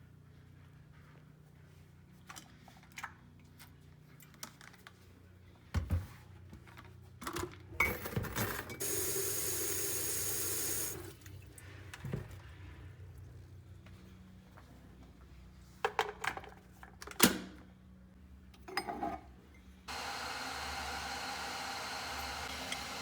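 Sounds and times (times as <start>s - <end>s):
water running: 8.8s - 11.4s.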